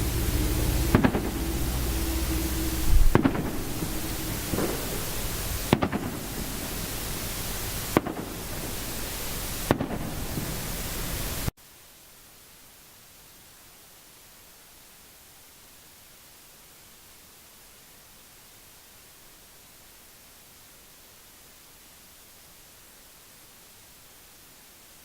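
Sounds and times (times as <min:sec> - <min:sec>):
fireworks bangs: 0:00.0 - 0:11.5
fireworks hiss: 0:00.0 - 0:11.5.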